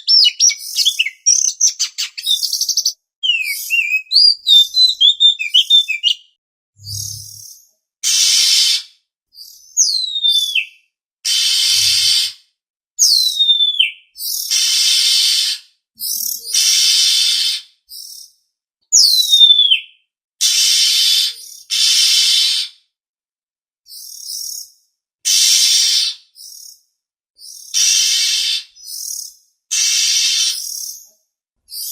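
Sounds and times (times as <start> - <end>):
harsh rasping bird calls: 0.0 - 6.2, 6.8 - 9.0, 11.3 - 12.4, 13.2 - 18.2, 20.4 - 22.8, 25.3 - 26.7, 27.4 - 31.0
bird whistles sliding down: 6.8 - 7.4, 11.3 - 12.3, 27.8 - 28.7, 29.7 - 30.8.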